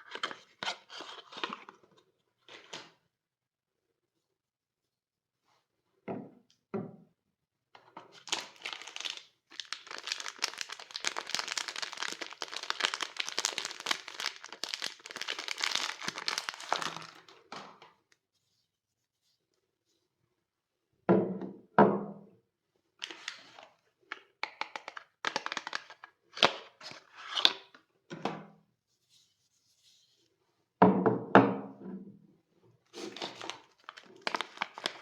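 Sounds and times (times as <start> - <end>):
wrapper tearing and crinkling: 8.2 - 17.4, 25.2 - 26.0, 33.0 - 35.0.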